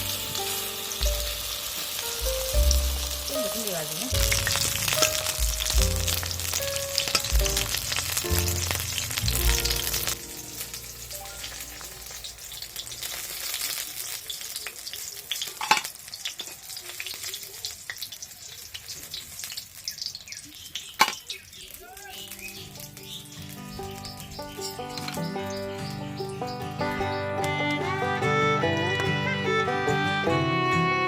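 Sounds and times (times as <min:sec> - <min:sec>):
food sizzling in hot oil: 0:00.0 - 0:24.1.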